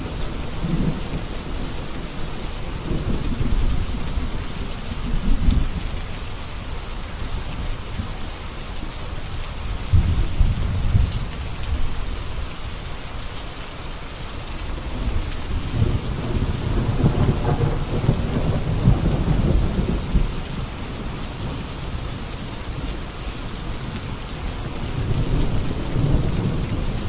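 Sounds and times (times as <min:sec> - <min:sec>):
steady rain falling: 0:00.0 - 0:27.0
thunder rolling: 0:14.8 - 0:20.6.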